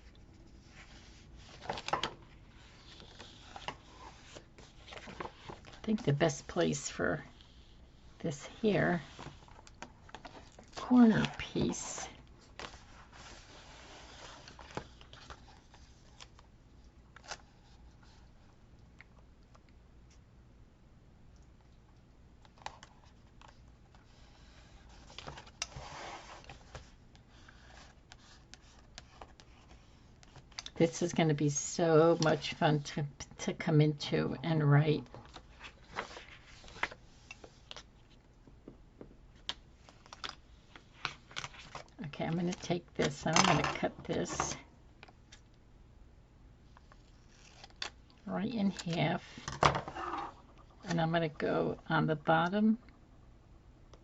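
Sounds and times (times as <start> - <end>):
paper rustling: 0.1 - 6.1.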